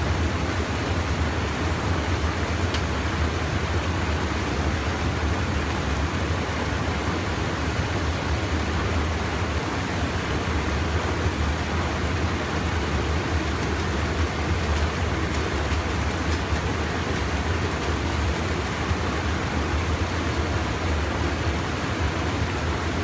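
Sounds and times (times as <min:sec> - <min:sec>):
stream water pouring over dam: 0:00.0 - 0:23.0.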